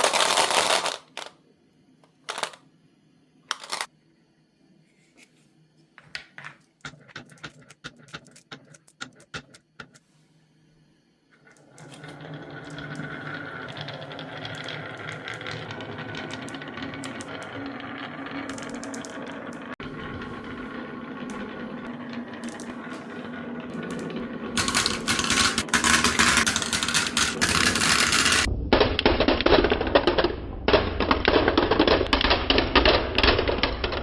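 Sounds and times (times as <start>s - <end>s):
marbles clicking: 0.0s - 1.3s, 2.3s - 2.6s, 3.5s - 3.9s, 11.5s - 34.0s
marbles rolling down wooden track: 0.0s - 1.3s, 2.3s - 2.6s, 3.5s - 3.9s, 6.4s - 10.0s, 11.4s - 34.0s
marbles knocking on wood: 6.4s - 10.0s, 12.2s - 19.7s, 23.8s - 34.0s.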